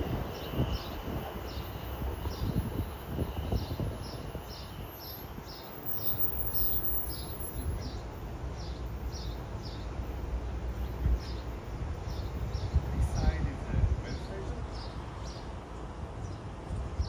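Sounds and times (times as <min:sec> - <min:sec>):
bird chirping: 0:05.5 - 0:08.0.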